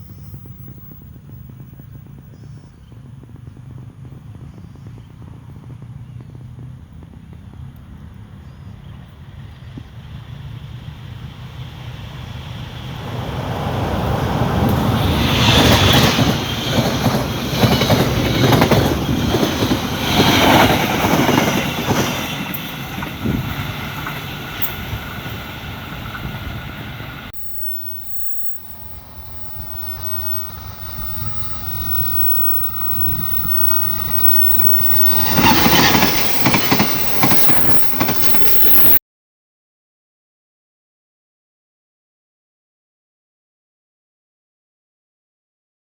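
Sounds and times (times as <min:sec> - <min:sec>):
train wheels clattering: 0:14.2 - 0:39.0.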